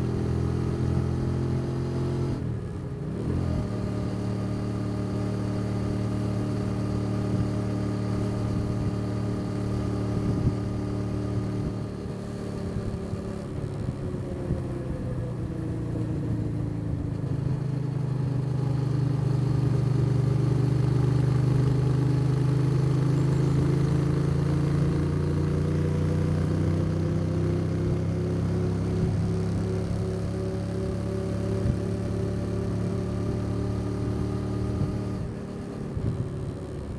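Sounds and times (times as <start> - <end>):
motorcycle engine: 16.1 - 36.9.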